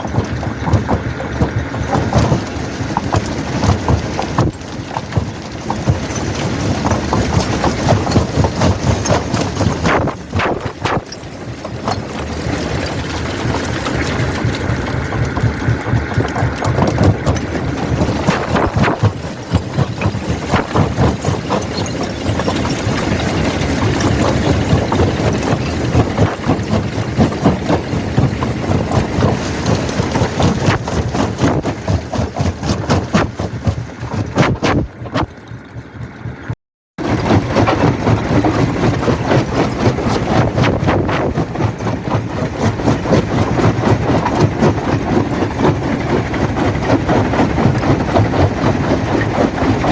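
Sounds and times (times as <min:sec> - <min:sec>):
jaw crusher crushing rock: 0:00.0 - 0:35.4, 0:37.0 - 0:49.9
machinery drone: 0:05.5 - 0:33.2.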